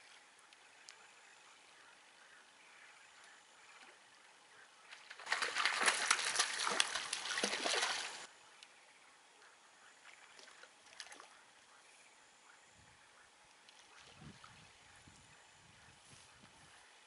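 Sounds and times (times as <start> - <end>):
water splashing: 4.9 - 8.3.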